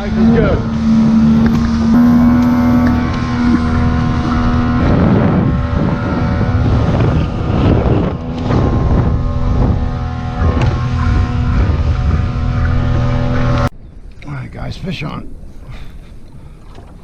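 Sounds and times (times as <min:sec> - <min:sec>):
motorboat engine running: 0:00.0 - 0:13.7
wind noise on microphone: 0:00.0 - 0:14.1
rough rushing noise: 0:00.4 - 0:07.4.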